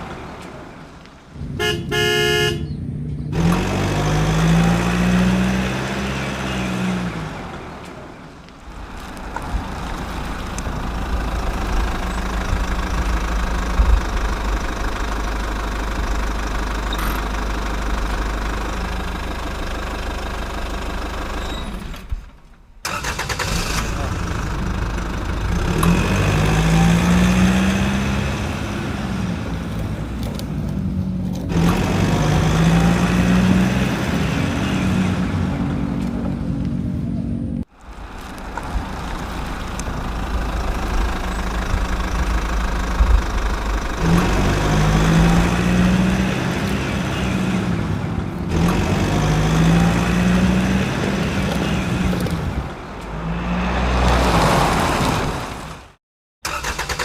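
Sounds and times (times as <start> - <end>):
truck engine revving: 0.0 - 22.1, 22.8 - 57.0.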